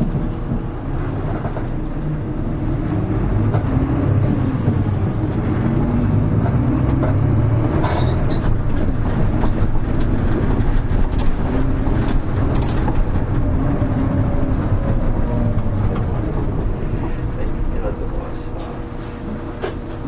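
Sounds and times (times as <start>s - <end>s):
bus diesel engine running: 0.0s - 20.0s
clicks and rattles: 6.4s - 16.8s.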